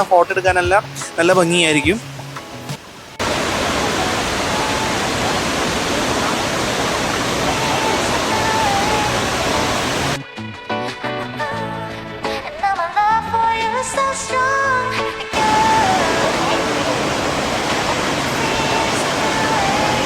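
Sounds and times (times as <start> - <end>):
waterfall rushing: 0.0 - 10.2, 15.3 - 20.0
music: 0.0 - 20.0.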